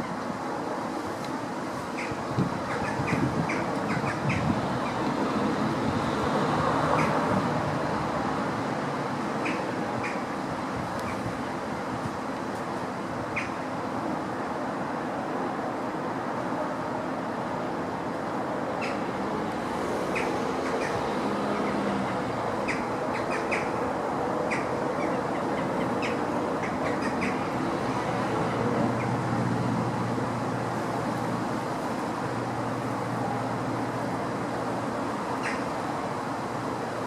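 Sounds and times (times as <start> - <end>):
birds chirping: 20.0 - 23.8, 24.5 - 27.5.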